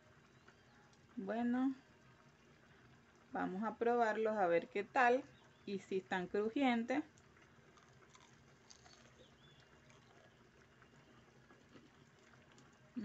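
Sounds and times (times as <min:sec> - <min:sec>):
person chewing crunchy food: 0:07.6 - 0:10.5, 0:11.5 - 0:12.8.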